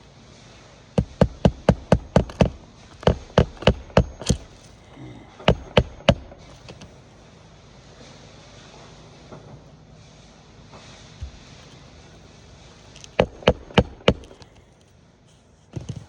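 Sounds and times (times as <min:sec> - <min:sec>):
hammer striking roofing nails: 0:01.0 - 0:04.8, 0:05.4 - 0:06.8, 0:11.2 - 0:11.6, 0:13.0 - 0:14.6.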